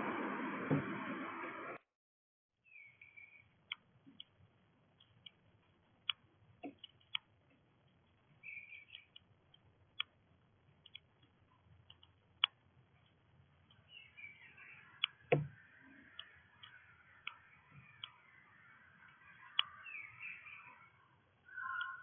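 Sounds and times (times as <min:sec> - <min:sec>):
small birds chirping: 0:02.6 - 0:22.0
sharp clicks and taps: 0:03.6 - 0:13.9.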